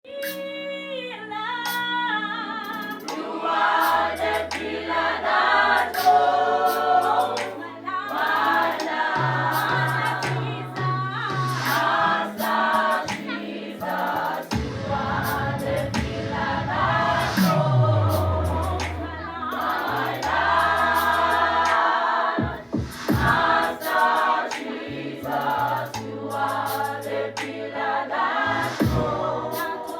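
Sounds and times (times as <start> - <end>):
choir singing in harmony: 2.1 - 29.9
deep held bass notes: 14.6 - 19.5.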